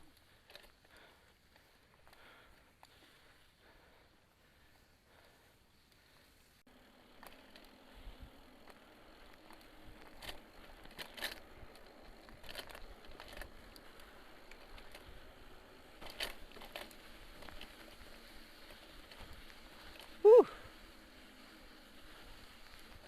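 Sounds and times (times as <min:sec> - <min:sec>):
bike clicks and rattles: 0:00.0 - 0:04.1, 0:05.2 - 0:23.0
bike tyres crackling on dirt: 0:00.0 - 0:23.0.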